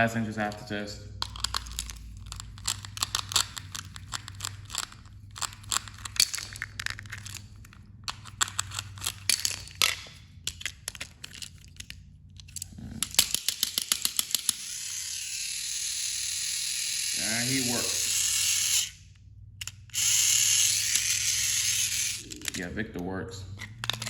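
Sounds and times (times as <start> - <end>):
small electric motor whirring: 0.5 - 9.8, 10.5 - 22.7
clicks and crinkly rustling: 0.5 - 12.9.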